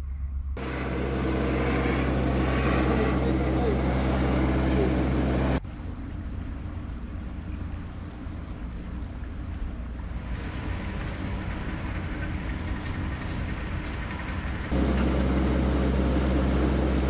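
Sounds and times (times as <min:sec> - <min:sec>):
boat diesel engine running: 0:00.6 - 0:05.6, 0:14.7 - 0:17.0.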